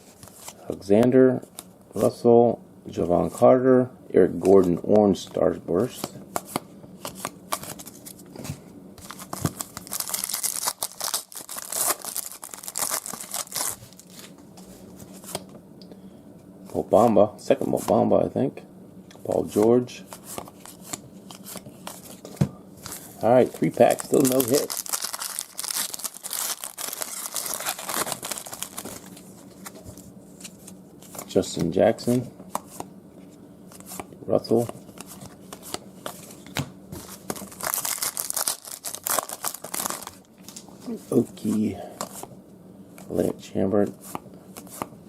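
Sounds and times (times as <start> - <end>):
foil wrapper tearing and crinkling: 9.0 - 14.3, 23.5 - 29.1, 37.2 - 40.3.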